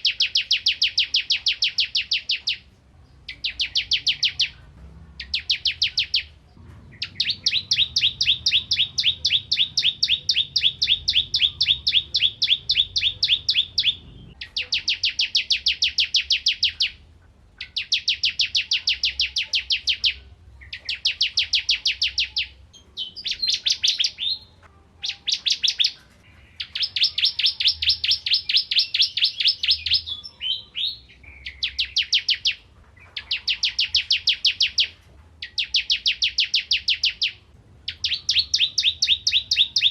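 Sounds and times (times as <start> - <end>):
bird singing high chirping trills: 0.0 - 39.9.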